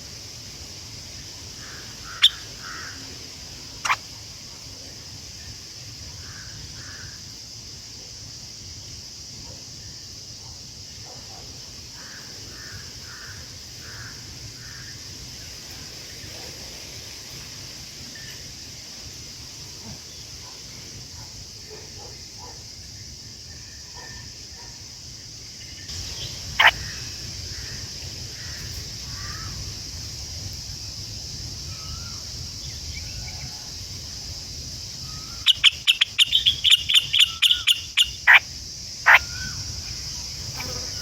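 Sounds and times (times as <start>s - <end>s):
high insect drone: 0.0s - 41.0s
bird calling sharply: 35.1s - 38.4s.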